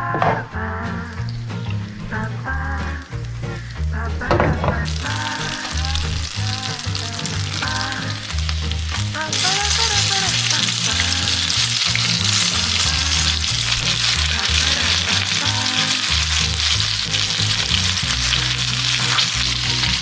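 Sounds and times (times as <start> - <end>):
music with repeating bass line: 0.0 - 20.0
fish frying in hot oil: 6.4 - 20.0.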